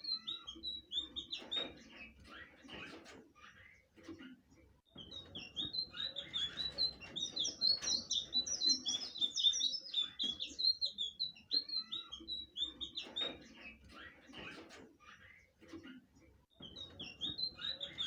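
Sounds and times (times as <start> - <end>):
flycatcher singing high chirps: 5.5 - 13.0.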